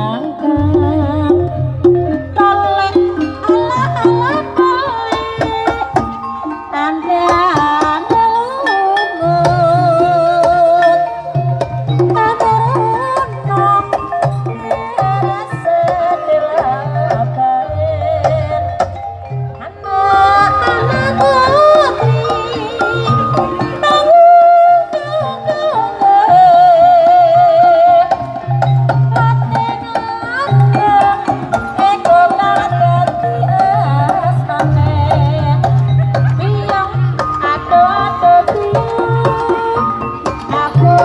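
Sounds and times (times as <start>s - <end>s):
hand drums: 0.0s - 41.0s
person singing wavering melody: 0.0s - 41.0s
pitched percussion: 0.0s - 41.0s
low bass pattern: 0.6s - 5.4s.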